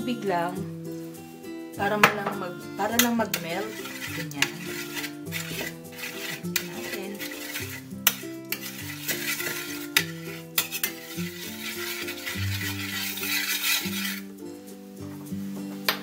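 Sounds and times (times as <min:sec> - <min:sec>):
background music low notes: 0:00.0 - 0:16.0
sauce sizzling: 0:00.7 - 0:01.9, 0:02.7 - 0:15.6
spoon clinking on pan: 0:03.0 - 0:14.2
spoon scraping frying pan: 0:03.0 - 0:14.8.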